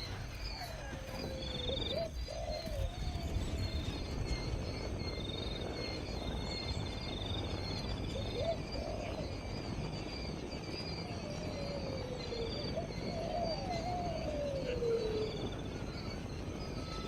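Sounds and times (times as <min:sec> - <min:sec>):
dove cooing: 0:00.0 - 0:05.0, 0:07.7 - 0:09.6, 0:11.0 - 0:17.0.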